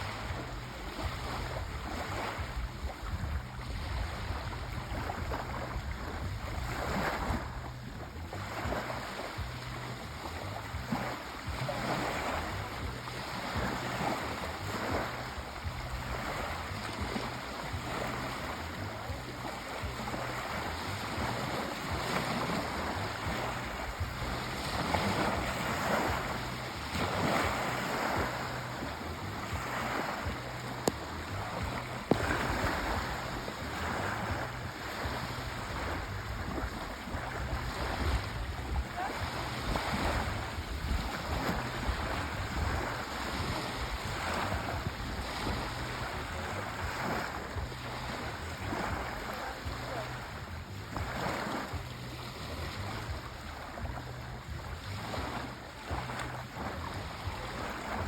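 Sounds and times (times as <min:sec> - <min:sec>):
sea waves washing ashore: 0:00.0 - 0:58.0.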